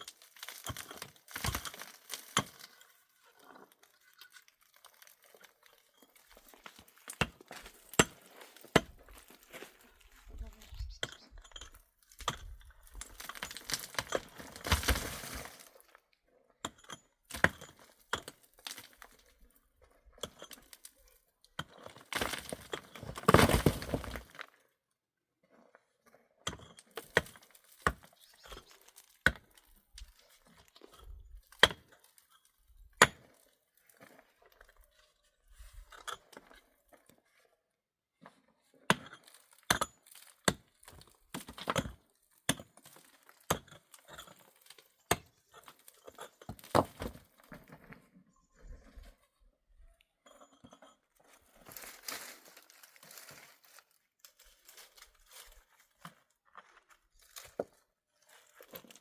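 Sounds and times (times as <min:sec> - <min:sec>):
crunching and scraping: 0:00.0 - 0:16.1, 0:17.3 - 0:24.7, 0:25.6 - 0:37.5, 0:38.2 - 0:59.0.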